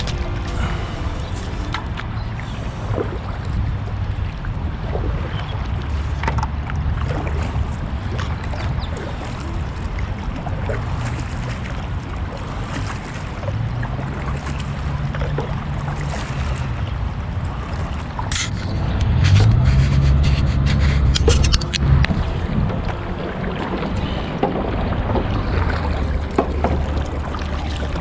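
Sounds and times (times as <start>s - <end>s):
wind on microphone: 0.0s - 28.0s
water spray: 18.3s - 22.8s.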